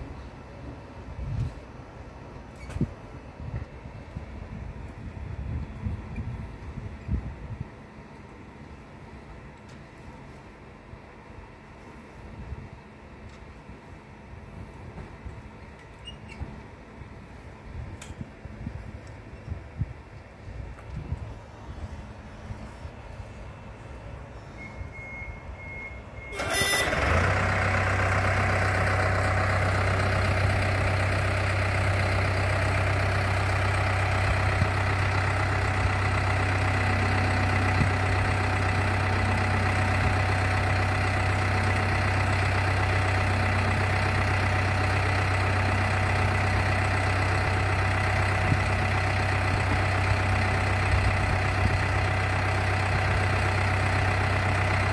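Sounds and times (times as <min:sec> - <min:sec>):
short electronic beeps: 0:24.5 - 0:27.0
engine starting and idling: 0:24.9 - 0:54.9.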